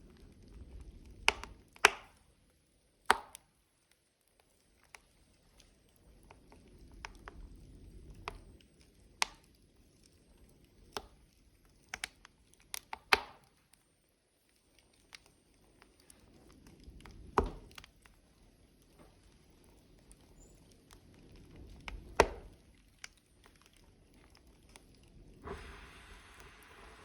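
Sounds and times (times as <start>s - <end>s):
low rush of flame: 0.0s - 2.3s, 4.6s - 11.9s, 15.4s - 27.0s
wood fire crackling and popping: 0.0s - 27.0s.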